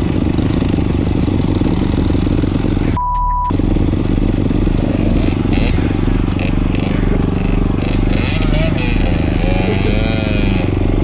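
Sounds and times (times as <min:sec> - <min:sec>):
motorcycle engine running: 0:00.0 - 0:11.0
censor bleep: 0:03.0 - 0:03.5.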